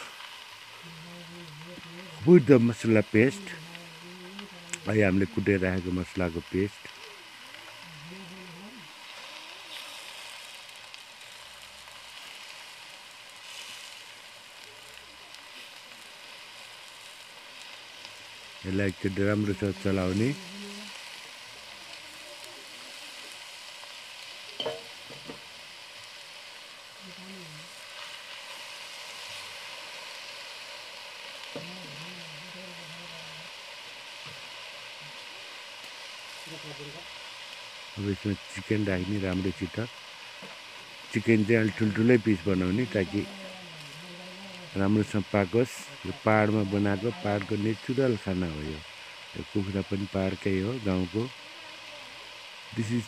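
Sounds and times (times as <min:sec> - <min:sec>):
food sizzling in a pan: 0:00.0 - 0:53.0
person humming: 0:00.8 - 0:02.4, 0:03.0 - 0:05.5, 0:06.9 - 0:09.9, 0:19.6 - 0:21.2, 0:27.0 - 0:27.8, 0:31.5 - 0:33.6, 0:41.8 - 0:47.6.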